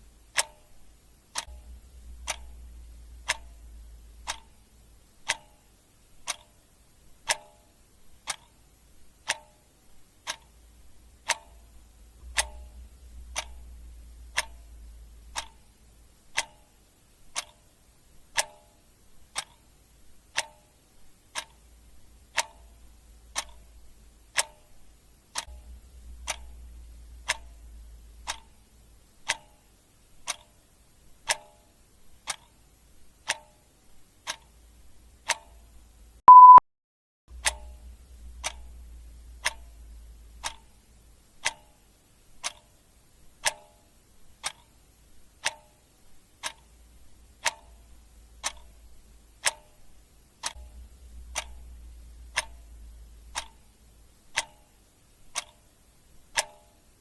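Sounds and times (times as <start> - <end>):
clock ticking: 0.0 - 36.6, 37.3 - 57.0
short high beep: 36.3 - 36.6.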